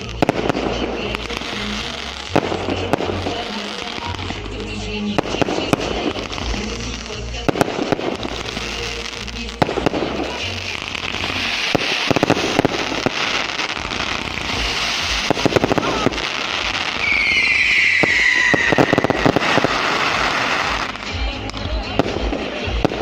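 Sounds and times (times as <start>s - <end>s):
fireworks bangs and crackling: 0.0s - 23.0s
falling firework whistle: 14.6s - 20.9s.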